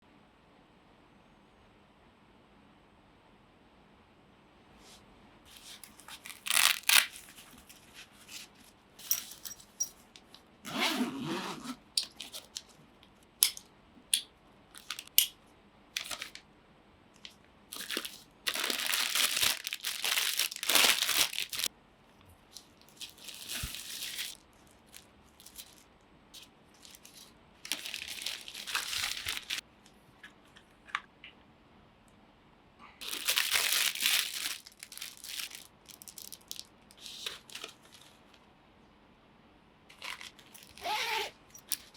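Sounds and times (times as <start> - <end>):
packaging rustling and crinkling: 5.5 - 10.4, 12.0 - 12.8, 14.8 - 15.2, 16.0 - 16.4, 17.2 - 21.7, 22.4 - 29.6, 33.0 - 38.3, 39.9 - 41.9.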